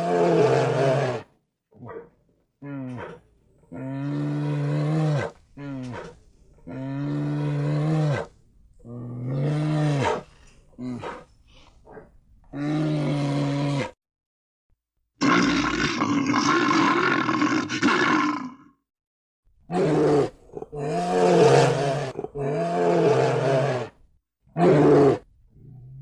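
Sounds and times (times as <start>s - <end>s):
bear roaring: 0.0s - 2.0s, 15.2s - 18.7s, 19.7s - 24.0s, 24.6s - 26.0s.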